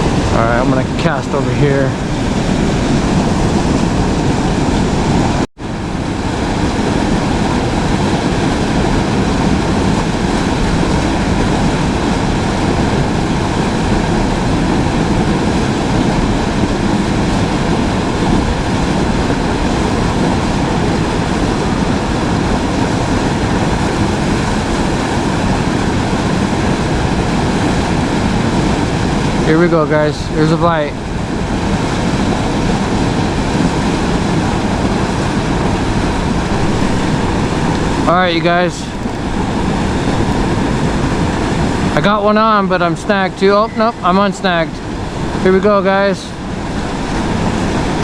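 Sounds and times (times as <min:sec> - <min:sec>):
river water rushing: 0:00.0 - 0:48.0.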